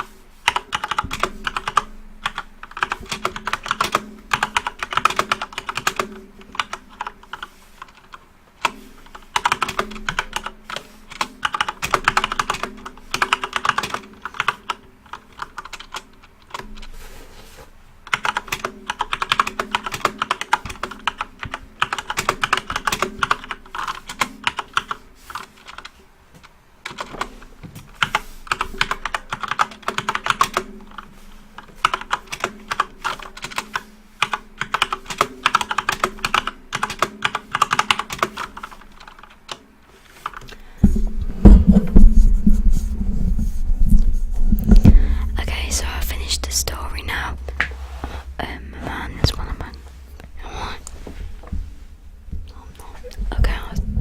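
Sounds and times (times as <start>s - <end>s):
rapid keyboard typing: 0.0s - 17.0s, 18.0s - 40.6s, 52.5s - 53.8s.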